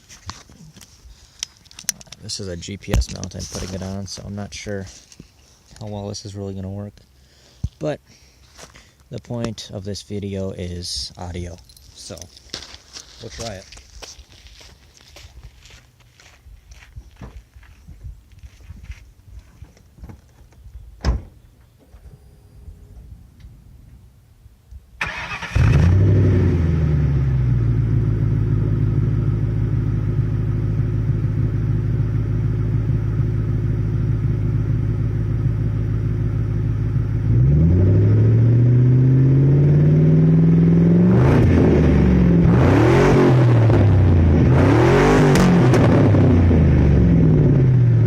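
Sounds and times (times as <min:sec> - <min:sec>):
car engine revving: 0:25.0 - 0:32.7, 0:36.1 - 0:48.0
car engine starting: 0:25.0 - 0:48.0
car engine idling: 0:26.6 - 0:37.4.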